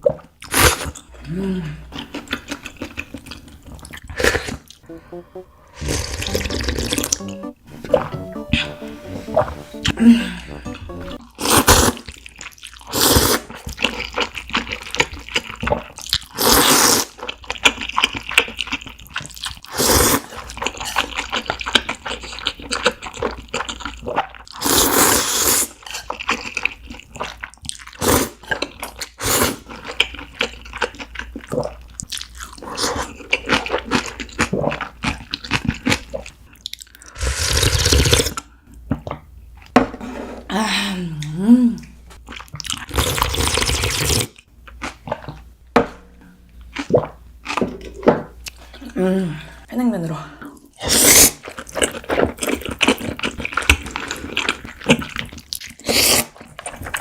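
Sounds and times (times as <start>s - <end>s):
loud noodle slurps: 0.4s - 1.0s, 12.8s - 13.6s, 16.3s - 17.2s, 24.6s - 25.8s, 37.2s - 38.4s, 42.8s - 44.3s, 50.8s - 51.5s, 55.8s - 56.4s.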